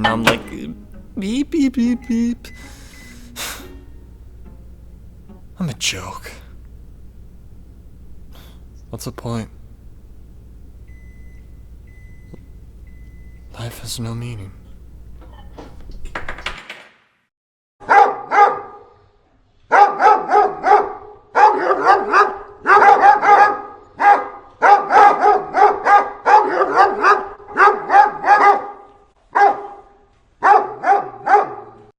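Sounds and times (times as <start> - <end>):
dog barking high yaps: 17.8 - 19.0, 19.7 - 31.9.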